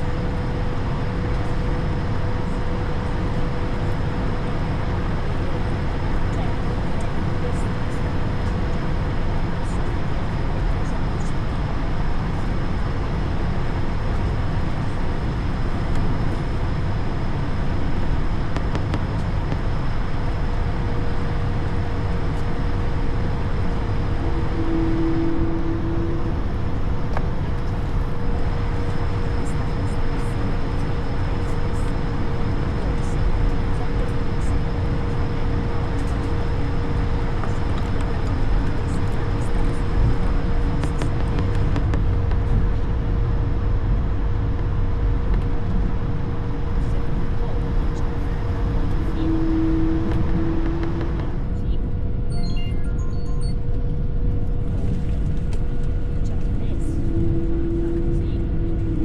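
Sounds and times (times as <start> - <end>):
jet engine rumble inside aircraft: 0.0 - 59.0
thin steady whine: 0.0 - 59.0
short tone: 24.3 - 26.3, 52.3 - 53.8.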